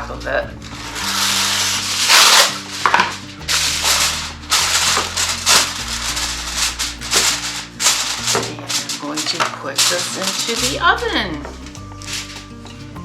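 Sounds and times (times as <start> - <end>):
aluminium foil crinkling: 0.7 - 12.8.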